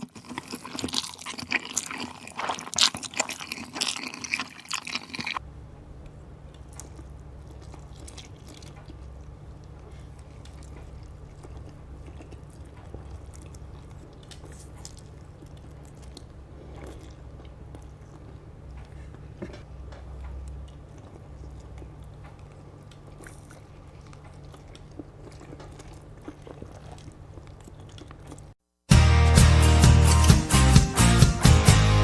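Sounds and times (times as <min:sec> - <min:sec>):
chewing noodles: 0:00.0 - 0:05.4, 0:06.1 - 0:28.6.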